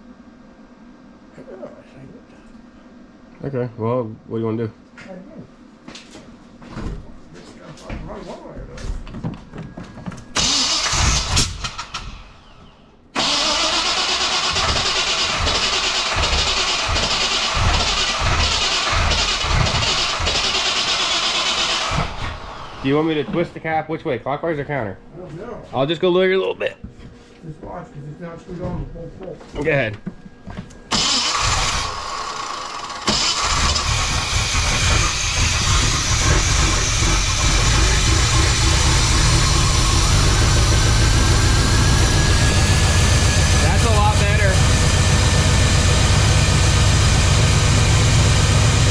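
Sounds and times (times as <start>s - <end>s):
engine cranking and firing: 10.3s - 12.6s, 13.2s - 22.8s, 30.9s - 48.9s
engine running loud: 13.2s - 22.8s, 30.9s - 48.9s.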